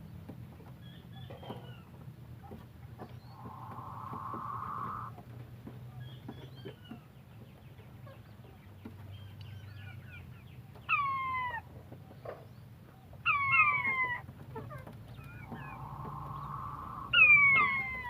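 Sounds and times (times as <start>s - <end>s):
soft chirps: 3.0s - 5.1s, 15.1s - 18.0s
quail calling: 3.2s - 5.2s, 13.2s - 18.0s.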